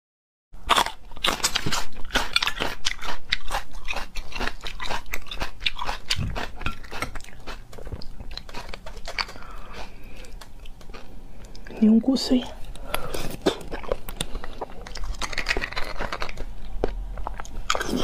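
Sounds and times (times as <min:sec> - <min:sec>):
crunching chili pepper: 0:00.6 - 0:11.6, 0:12.6 - 0:18.0
wet mouth sounds: 0:00.7 - 0:11.7, 0:12.6 - 0:18.0.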